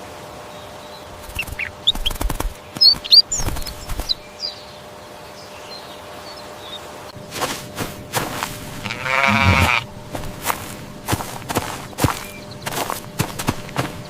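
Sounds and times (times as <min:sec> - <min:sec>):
steady low background noise: 0:00.0 - 0:14.0
birds chirping: 0:00.5 - 0:07.1, 0:08.8 - 0:14.0
wings flapping: 0:01.2 - 0:04.3, 0:07.4 - 0:14.0.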